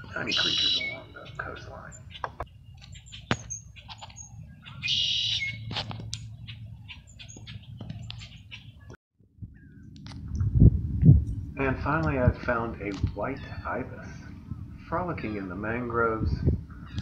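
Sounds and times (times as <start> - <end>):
loud harsh bird call: 0.0 - 5.7, 13.2 - 14.4
steady low rumble: 0.0 - 8.2, 9.2 - 17.0
birds chirping: 0.0 - 10.3, 11.2 - 17.0.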